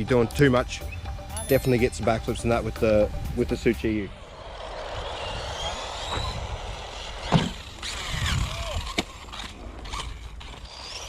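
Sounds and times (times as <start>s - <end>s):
rc car motor whining: 1.7s - 11.0s.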